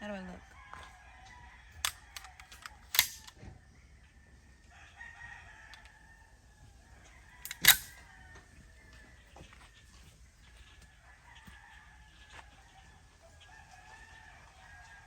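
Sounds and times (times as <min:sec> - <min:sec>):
pistol gunshots: 0:07.4 - 0:08.0.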